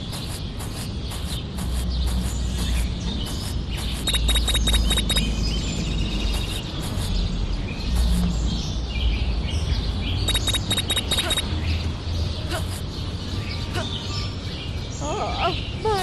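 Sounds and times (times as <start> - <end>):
high bird-like chirps: 0.0 - 8.4, 10.2 - 11.8.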